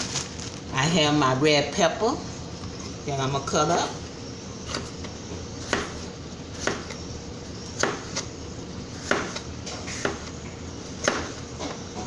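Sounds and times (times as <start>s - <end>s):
knife chopping pepper: 4.7s - 11.8s.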